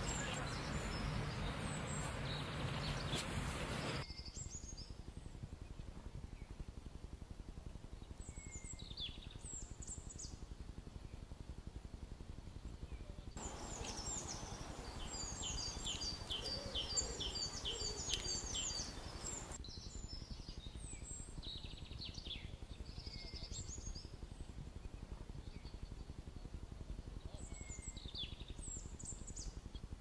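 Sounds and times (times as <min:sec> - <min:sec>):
small birds chirping: 0:00.0 - 0:04.9, 0:12.6 - 0:30.0
low background rumble: 0:00.0 - 0:30.0.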